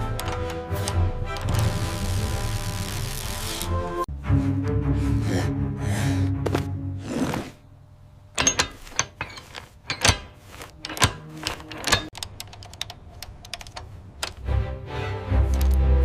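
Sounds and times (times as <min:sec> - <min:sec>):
sharp clicks and taps: 0:10.9 - 0:14.5, 0:15.5 - 0:15.8.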